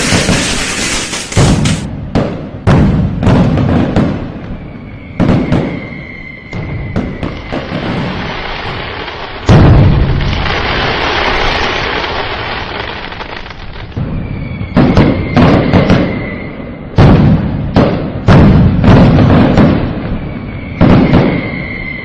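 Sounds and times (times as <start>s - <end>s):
firework crackle: 0.0s - 1.9s, 3.2s - 17.2s, 17.8s - 22.0s
firework boom: 0.0s - 4.6s, 9.4s - 11.4s
sharp firework bangs: 0.0s - 4.6s, 5.2s - 13.2s, 13.9s - 16.2s, 16.9s - 21.7s.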